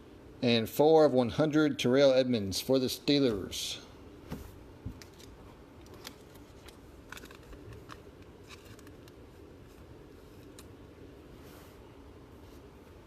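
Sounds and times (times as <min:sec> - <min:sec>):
cards clicking and rustling: 0:05.0 - 0:10.8.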